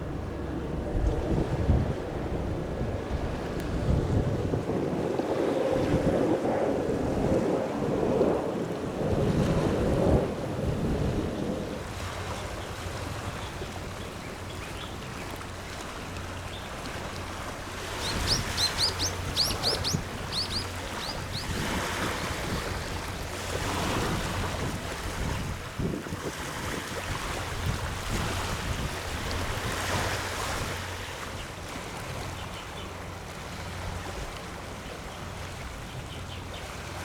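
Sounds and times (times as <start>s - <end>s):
small waves washing onto shore: 0.0s - 37.0s
bird chirping: 18.0s - 21.6s.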